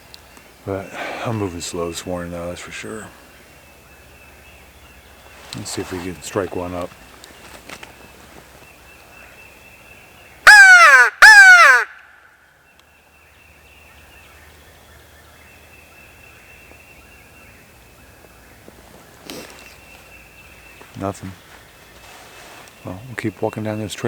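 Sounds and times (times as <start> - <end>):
crow call caws: 10.5 - 12.3.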